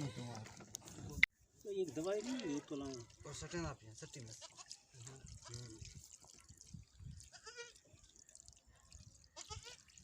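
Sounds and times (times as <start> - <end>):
goat bleating: 7.3 - 7.8, 9.4 - 9.9.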